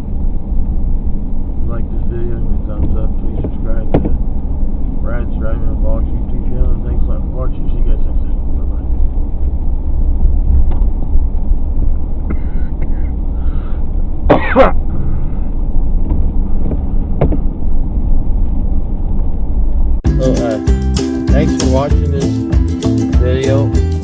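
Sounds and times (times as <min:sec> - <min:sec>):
car road and engine rumble: 0:00.0 - 0:20.0
person coughing: 0:12.3 - 0:13.2, 0:14.3 - 0:14.8.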